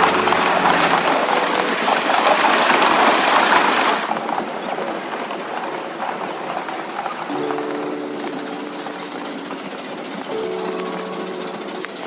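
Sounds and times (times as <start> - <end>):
train wheels rattling on rails: 0.0 - 12.0.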